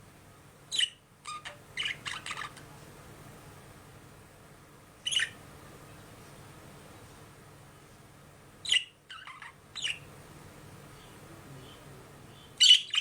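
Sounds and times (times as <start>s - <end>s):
budgerigar chirping: 0.7s - 2.6s, 5.0s - 5.4s, 8.6s - 10.1s, 12.4s - 13.0s.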